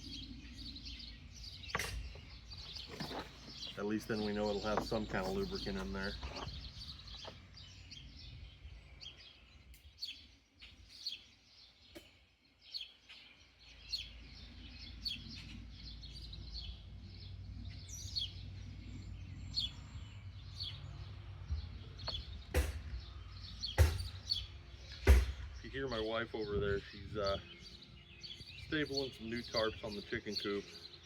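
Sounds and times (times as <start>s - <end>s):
small birds chirping: 0.0s - 31.0s
low outdoor rumble: 14.1s - 30.2s.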